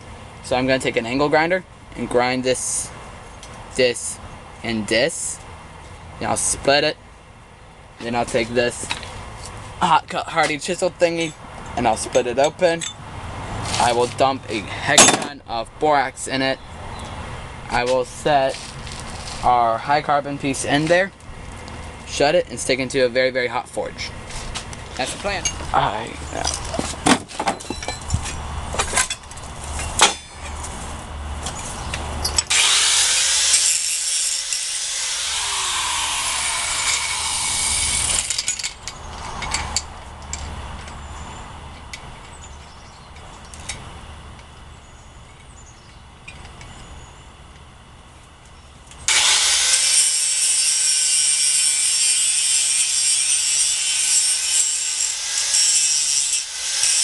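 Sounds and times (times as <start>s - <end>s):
handling knocks and clatter: 26.4s - 30.6s
angle grinder grinding metal: 32.3s - 38.8s, 49.1s - 57.0s.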